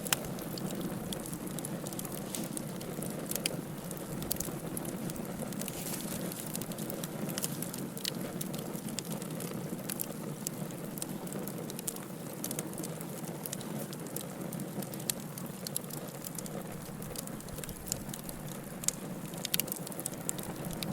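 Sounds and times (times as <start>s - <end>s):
hiss of flames: 0.0s - 12.2s
wood fire crackling and popping: 0.0s - 20.9s.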